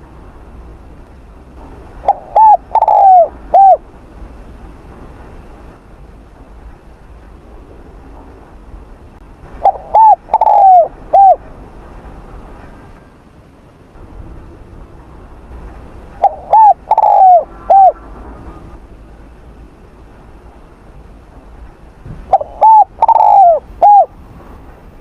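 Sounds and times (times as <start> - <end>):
dove cooing: 2.0 - 3.8, 9.6 - 11.4, 16.2 - 18.0, 22.3 - 24.2.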